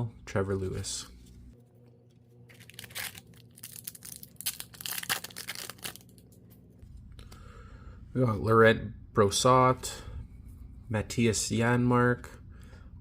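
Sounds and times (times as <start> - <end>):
foil wrapper tearing and crinkling: 2.5 - 6.3.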